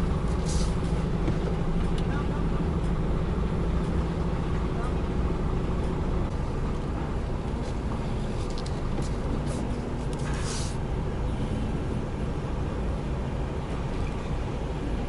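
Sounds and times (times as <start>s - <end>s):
diesel truck engine running: 0.0s - 15.0s
short air hiss: 10.2s - 10.8s.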